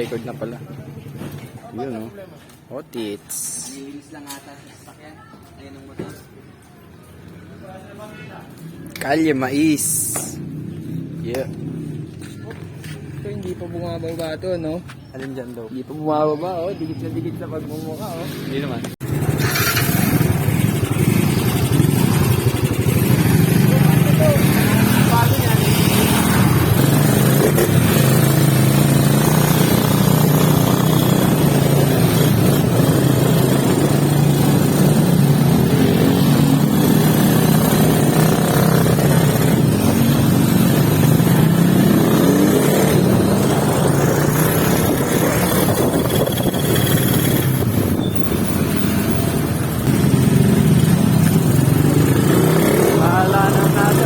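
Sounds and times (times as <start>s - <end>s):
motorcycle engine revving: 18.5s - 54.0s.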